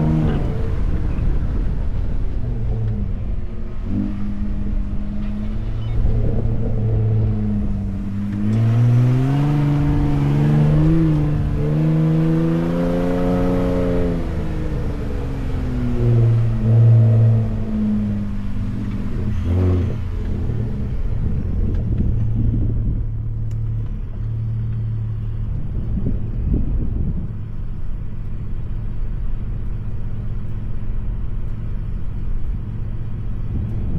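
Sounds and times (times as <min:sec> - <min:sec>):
truck engine revving: 0:00.0 - 0:22.9.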